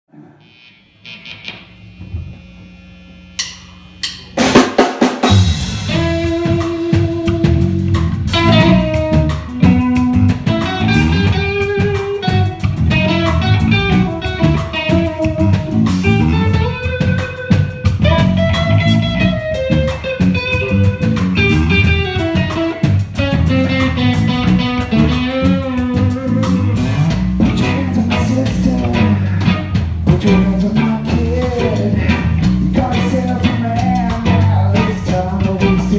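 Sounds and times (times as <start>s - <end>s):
low hum: 0.1s - 4.6s
funk rock band playing: 4.0s - 35.9s.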